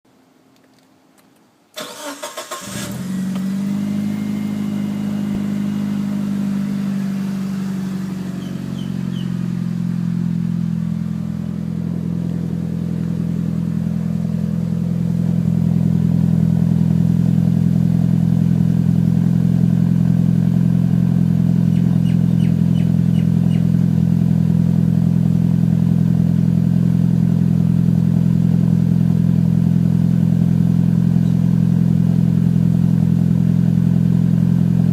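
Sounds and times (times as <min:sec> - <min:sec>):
starter motor cranking: 0:01.8 - 0:03.0
car engine idling: 0:01.8 - 0:34.9.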